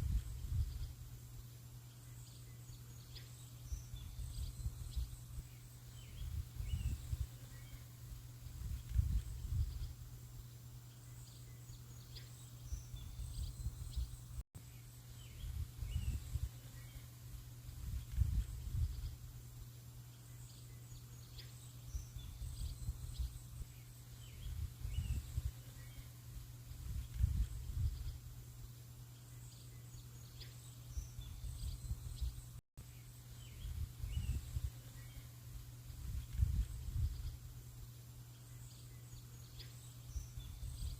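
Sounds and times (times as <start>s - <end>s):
birds chirping faintly: 0.8s - 16.1s.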